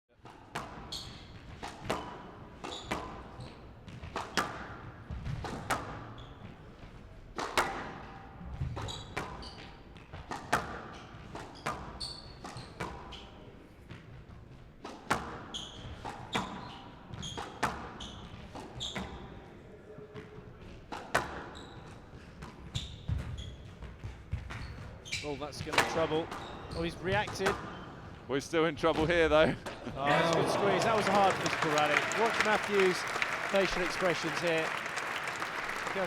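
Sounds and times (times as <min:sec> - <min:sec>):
shoe squeaks on court floor: 0:00.8 - 0:01.4, 0:02.0 - 0:03.6, 0:06.1 - 0:06.4, 0:08.8 - 0:09.8, 0:11.6 - 0:13.3, 0:15.4 - 0:19.3, 0:21.5 - 0:23.8, 0:24.5 - 0:27.0.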